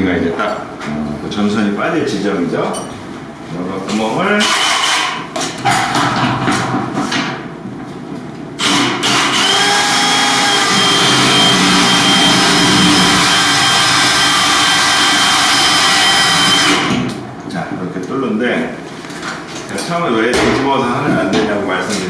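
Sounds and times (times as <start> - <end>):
power drill boring gypsum board: 4.4 - 5.2, 8.6 - 17.0.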